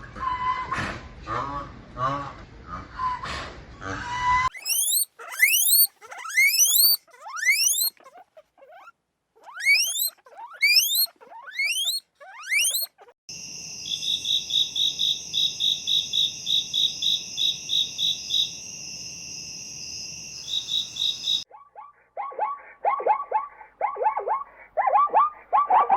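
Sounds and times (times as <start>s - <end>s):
animal squeals rising in pitch: 4.5s - 13.2s.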